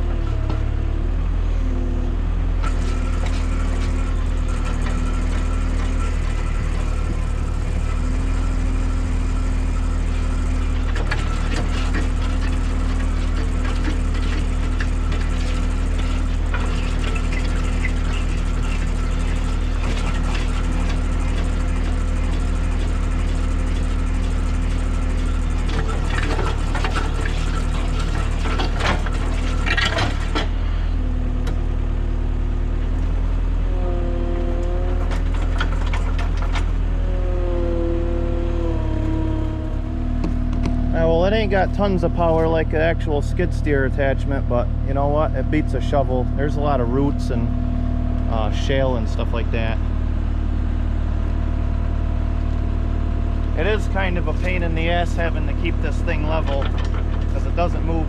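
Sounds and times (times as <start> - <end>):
skid steer engine running: 0.0 - 58.0
auger scraping and clicking: 24.9 - 30.5, 53.4 - 58.0.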